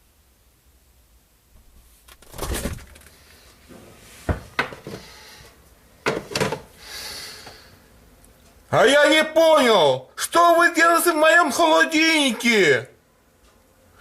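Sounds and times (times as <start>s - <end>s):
soft hiss: 0.0s - 2.2s, 6.6s - 8.8s
refrigerator door opening: 2.1s - 3.2s.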